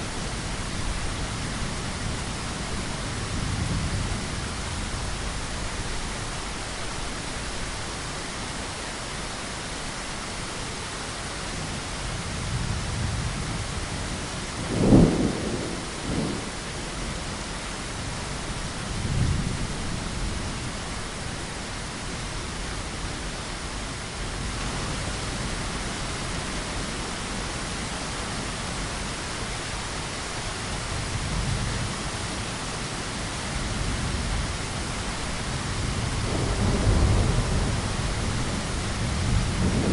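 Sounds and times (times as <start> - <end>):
steady rain: 0.0 - 39.9
sharp thunderclap: 14.6 - 16.6, 35.8 - 39.9
thunder rolling: 14.6 - 16.9, 35.8 - 39.9.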